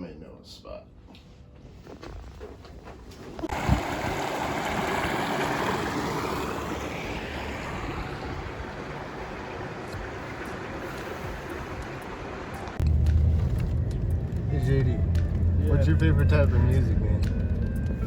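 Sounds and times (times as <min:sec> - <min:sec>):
steady rushing noise: 0:03.5 - 0:15.6.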